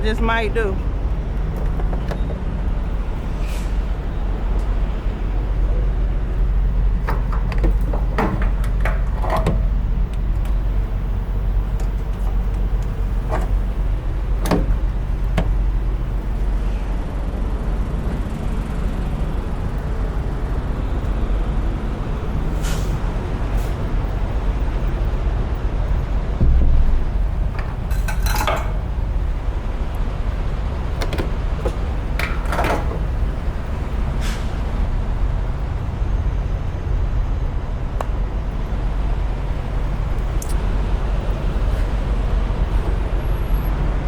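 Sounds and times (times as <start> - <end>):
diesel truck engine idling: 0.0 - 44.0
metal clicks and clanks: 7.0 - 10.6, 27.4 - 29.0, 31.0 - 33.1.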